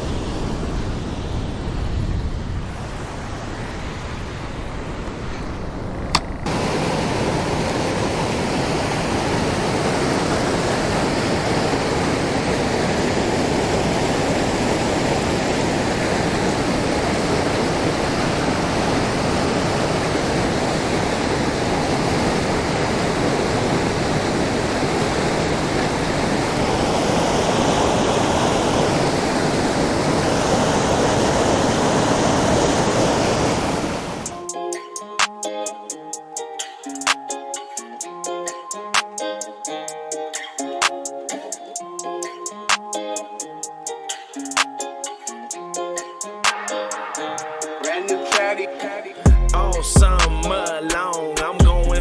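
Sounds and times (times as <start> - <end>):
river water flowing over rocks: 6.5 - 34.3.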